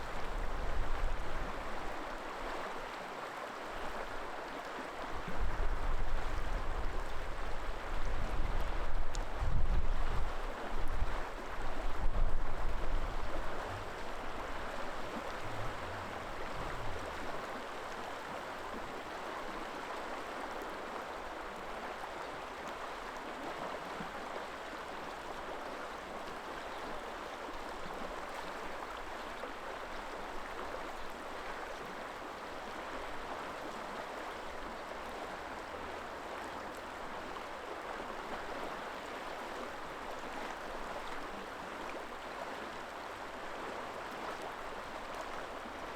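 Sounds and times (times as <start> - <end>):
wind buffeting microphone: 8.1 - 18.0
river water rushing: 10.4 - 45.9.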